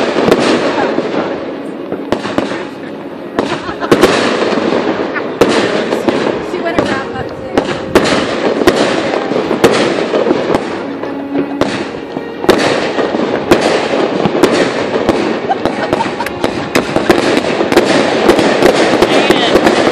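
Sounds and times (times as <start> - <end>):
fireworks bangs: 0.0 - 19.9
fireworks crackle: 0.0 - 19.9.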